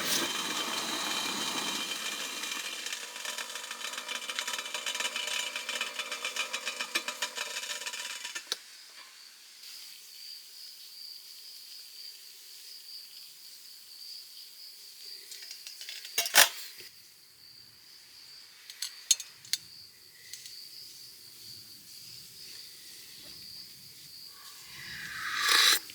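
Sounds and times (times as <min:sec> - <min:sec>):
insects trilling: 0:20.2 - 0:25.9
rapid rasping noise: 0:24.4 - 0:25.9.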